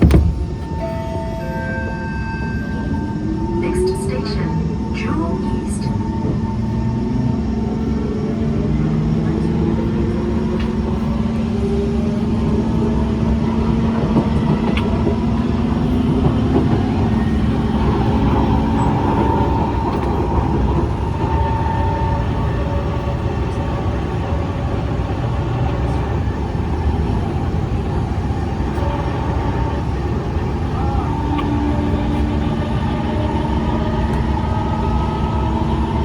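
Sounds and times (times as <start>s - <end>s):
higher tone: 0.0s - 6.0s
train wheels rumbling on track: 0.0s - 36.0s.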